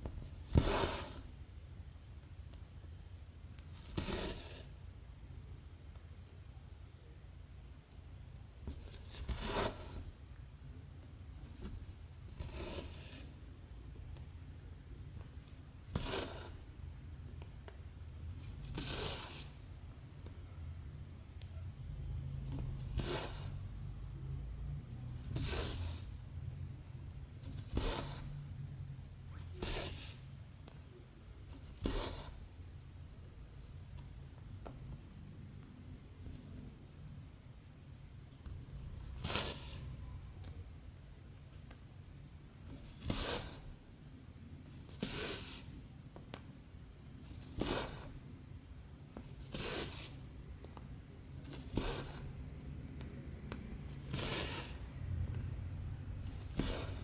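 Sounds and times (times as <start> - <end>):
thread swishing through fabric: 56.2 - 57.0.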